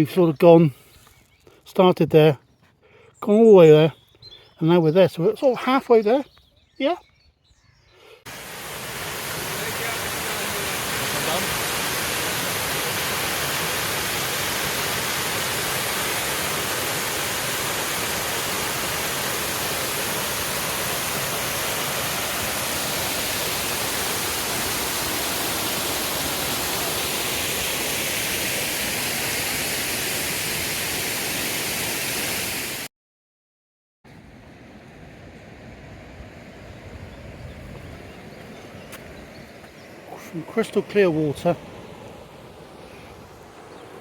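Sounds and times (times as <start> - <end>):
waterfall rushing: 8.3 - 32.8, 39.7 - 44.0.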